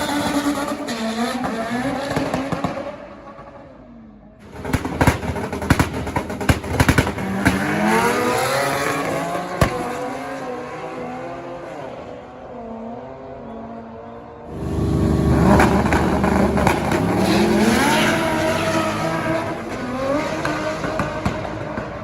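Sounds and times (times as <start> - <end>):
exhaust pops: 4.4 - 8.0, 14.5 - 22.0
car engine accelerating: 4.4 - 12.0, 14.5 - 22.0.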